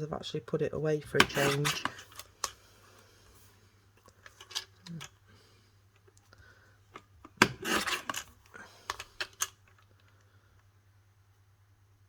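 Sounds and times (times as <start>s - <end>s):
paper trimmer blade cutting cardstock: 1.2s - 2.2s, 7.4s - 8.3s
trimmer and paper clicking: 1.2s - 2.6s, 7.3s - 9.6s.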